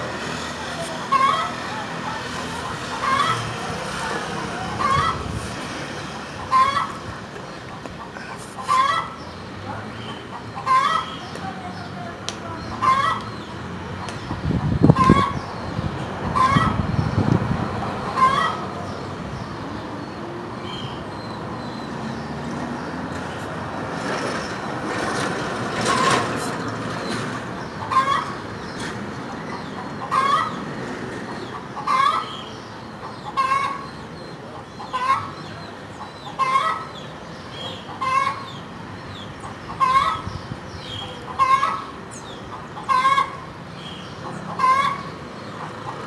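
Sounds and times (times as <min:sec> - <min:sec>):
hen cackling: 0:00.0 - 0:09.3, 0:10.3 - 0:13.5, 0:14.4 - 0:15.5, 0:16.1 - 0:19.0, 0:27.7 - 0:30.7, 0:31.3 - 0:33.9, 0:34.6 - 0:37.1, 0:37.7 - 0:38.6, 0:39.4 - 0:43.6, 0:44.2 - 0:46.0.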